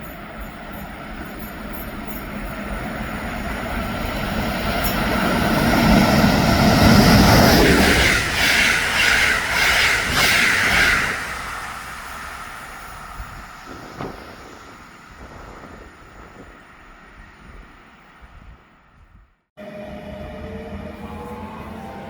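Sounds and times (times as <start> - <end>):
train wheels clattering over rails: 0.0 - 16.8.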